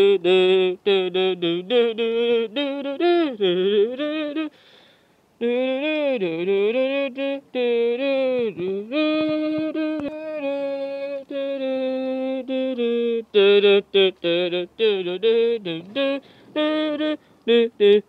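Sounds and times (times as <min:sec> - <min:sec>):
person singing wordless held notes: 0:05.3 - 0:18.0.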